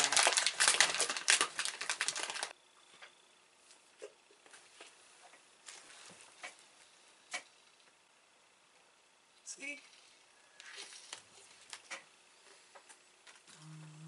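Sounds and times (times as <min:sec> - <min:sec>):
plastic packet crinkling: 0:00.0 - 0:02.6.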